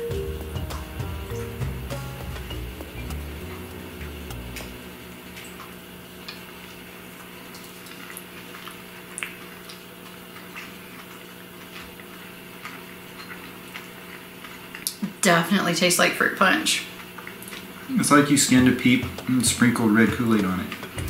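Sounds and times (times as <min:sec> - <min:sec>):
music track: 0:00.0 - 0:06.9
steady low hum: 0:00.0 - 0:10.6, 0:16.9 - 0:21.0
quiet chewing: 0:02.3 - 0:15.1, 0:16.9 - 0:21.0.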